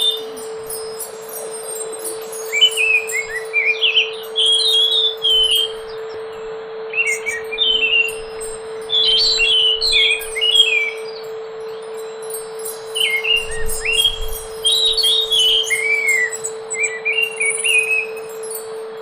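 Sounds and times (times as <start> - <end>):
bird singing whistled phrases: 0.0 - 12.2, 12.9 - 18.3
low electrical hum: 0.0 - 19.0.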